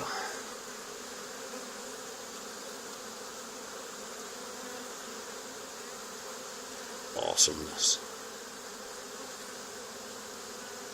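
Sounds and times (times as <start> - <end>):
bee swarm buzzing: 0.0 - 10.9.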